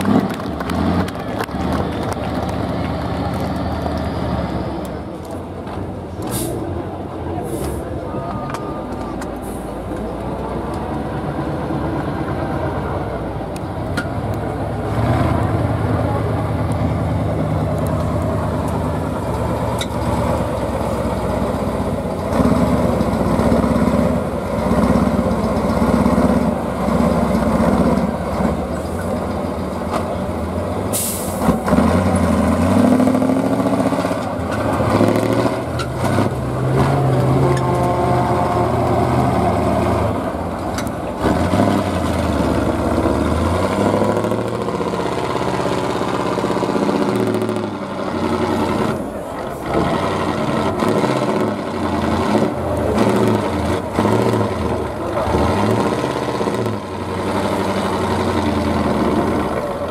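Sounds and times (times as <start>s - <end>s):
truck engine revving: 0.0s - 8.0s, 9.3s - 59.9s
sharp air hiss: 30.9s - 31.4s.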